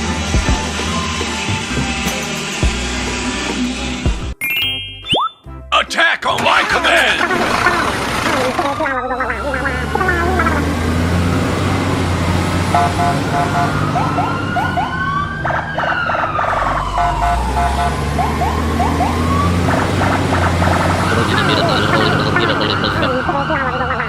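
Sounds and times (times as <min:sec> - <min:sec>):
siren wailing: 0:09.0 - 0:24.0
low engine rumble: 0:19.3 - 0:23.8.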